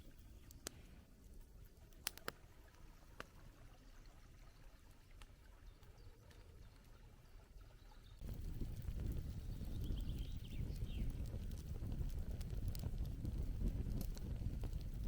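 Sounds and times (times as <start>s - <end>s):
campfire crackling pops: 0.4s - 3.3s, 8.2s - 15.0s.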